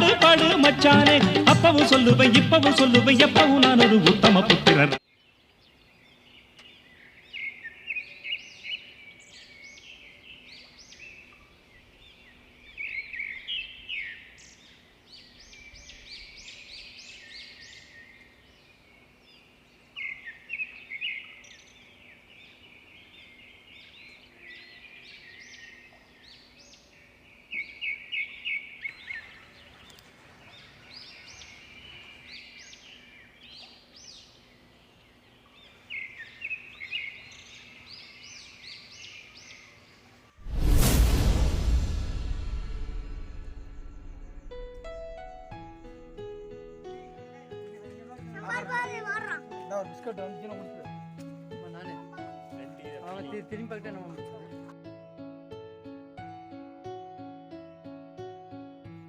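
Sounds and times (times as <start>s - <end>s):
quiet bird calls: 5.0s - 40.4s.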